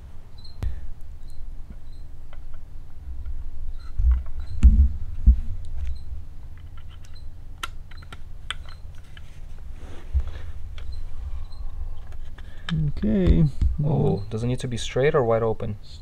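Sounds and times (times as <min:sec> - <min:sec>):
hands clicking plastic parts: 0:05.6 - 0:09.3, 0:12.0 - 0:14.2.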